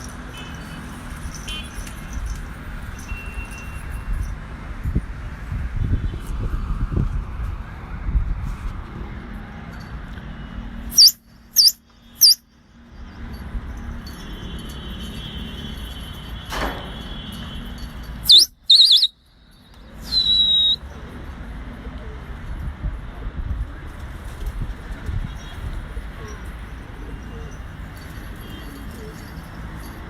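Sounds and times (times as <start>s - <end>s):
shrill swooping whistles: 10.9s - 12.4s, 18.2s - 19.2s, 20.0s - 20.8s.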